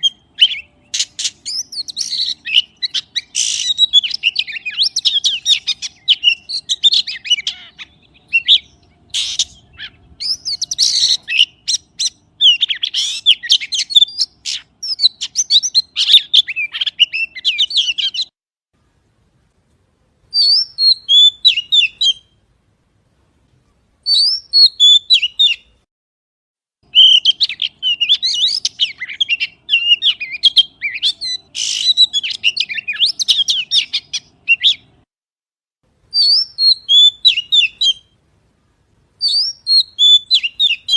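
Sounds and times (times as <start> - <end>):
magpie chattering: 0.0 - 18.3, 26.9 - 34.9.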